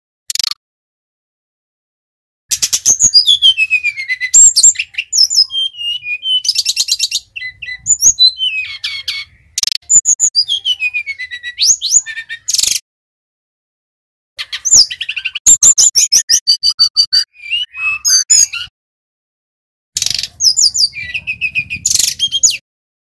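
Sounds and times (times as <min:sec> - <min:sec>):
bird singing whistles and trills: 0:02.5 - 0:12.8, 0:14.4 - 0:18.7, 0:20.0 - 0:22.6.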